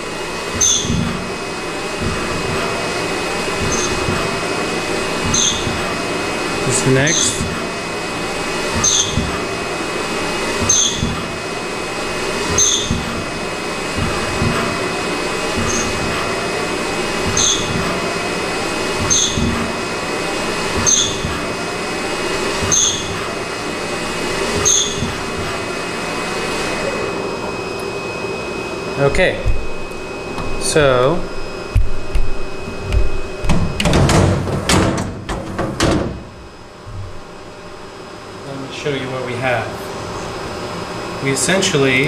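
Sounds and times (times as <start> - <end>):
steady machine hum: 0.0 - 42.0
low knock: 36.9 - 37.5.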